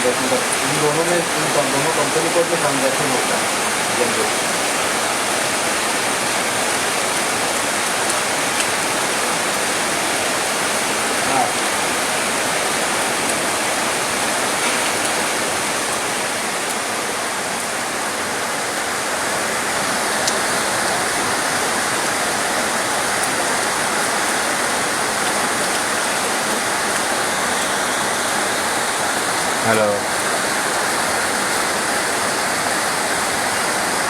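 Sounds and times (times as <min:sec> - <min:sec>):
heavy rain: 0:00.0 - 0:34.0.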